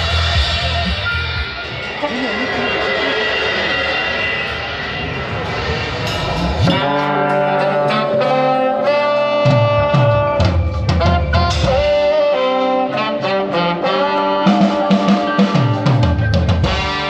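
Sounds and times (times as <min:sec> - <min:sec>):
brass band playing: 0:06.6 - 0:17.0.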